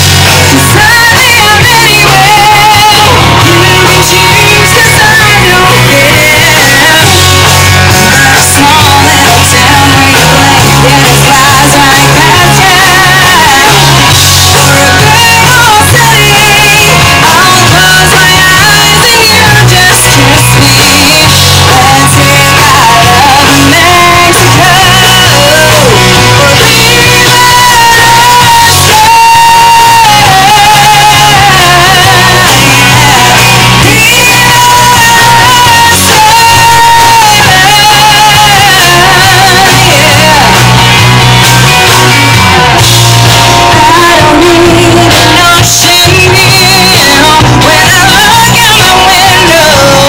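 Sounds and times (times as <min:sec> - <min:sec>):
country-rock band playing: 0:00.0 - 0:50.0.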